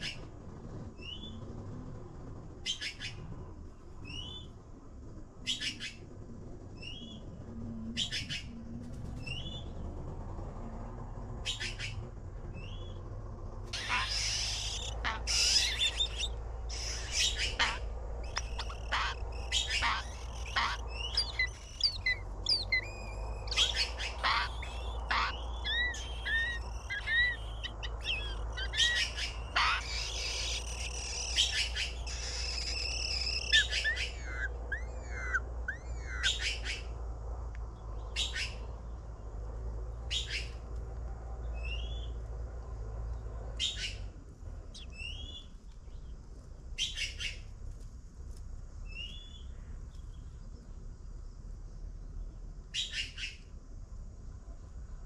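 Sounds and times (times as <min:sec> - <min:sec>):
birds chirping and calling: 0:11.5 - 0:12.0, 0:13.7 - 0:36.9, 0:38.0 - 0:39.0, 0:40.0 - 0:40.6, 0:43.6 - 0:44.0, 0:44.7 - 0:46.1.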